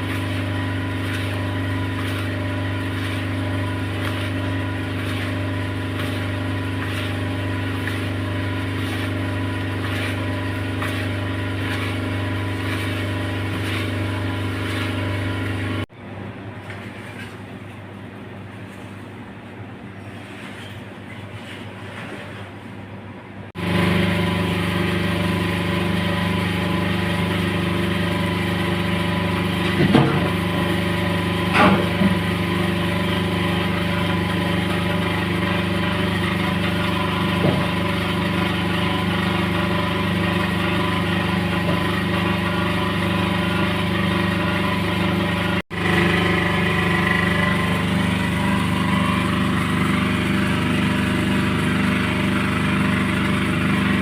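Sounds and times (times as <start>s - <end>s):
engine idling: 23.6s - 54.0s.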